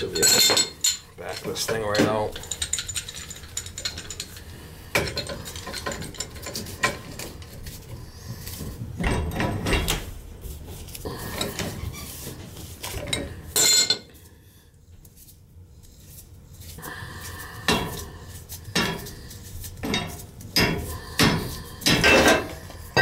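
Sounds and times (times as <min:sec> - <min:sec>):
wrench clanking on metal pipe: 0:00.0 - 0:07.3, 0:19.8 - 0:23.0.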